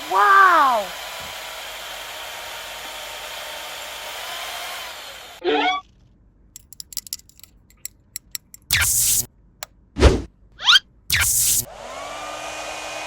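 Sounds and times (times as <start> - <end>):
soft clicks: 6.6 - 9.3
small motorized tool whirring: 8.6 - 9.3, 11.1 - 12.4.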